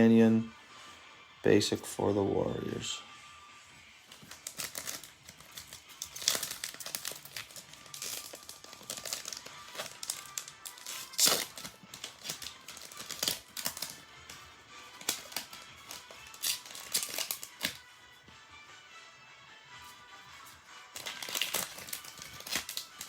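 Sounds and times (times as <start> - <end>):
faint background music: 0.0 - 23.0
foil wrappers crinkling: 4.1 - 17.8, 20.4 - 23.0.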